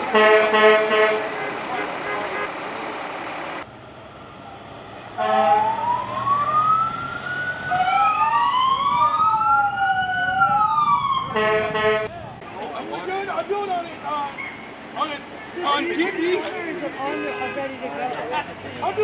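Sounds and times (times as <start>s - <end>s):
horn blast: 0.0s - 2.6s, 11.4s - 12.1s
emergency sirens wailing: 0.0s - 19.0s
vehicle rumble: 0.0s - 19.0s.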